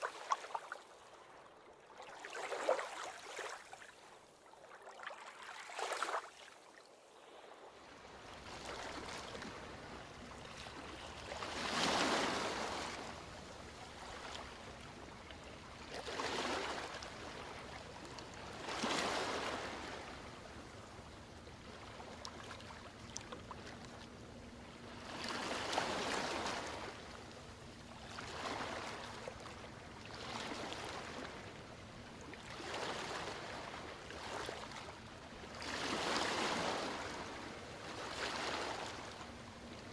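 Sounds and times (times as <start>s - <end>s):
ocean waves breaking on beach: 7.2s - 20.8s, 24.8s - 27.3s, 28.0s - 31.7s, 32.4s - 39.9s.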